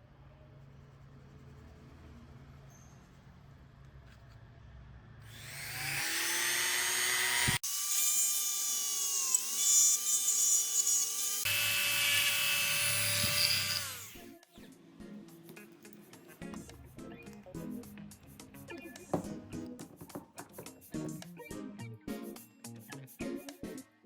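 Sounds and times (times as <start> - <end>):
small electric motor whining: 5.3 - 14.3.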